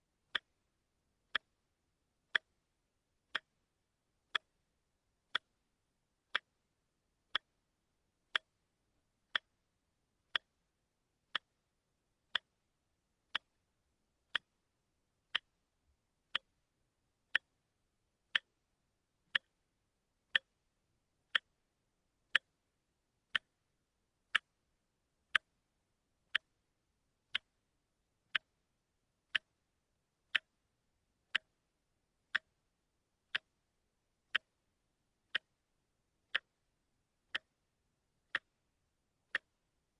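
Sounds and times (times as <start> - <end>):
wristwatch ticking: 0.3 - 0.6, 1.3 - 1.6, 2.3 - 2.6, 3.3 - 3.6, 4.2 - 4.6, 5.2 - 6.6, 7.3 - 7.6, 8.2 - 8.7, 9.3 - 9.6, 10.3 - 10.6, 11.3 - 11.6, 12.3 - 12.7, 13.3 - 13.6, 14.3 - 15.6, 16.3 - 16.7, 17.3 - 17.7, 18.3 - 18.6, 19.3 - 19.6, 20.3 - 20.7, 21.3 - 21.7, 22.3 - 22.7, 23.3 - 26.7, 27.3 - 31.6, 32.2 - 39.8.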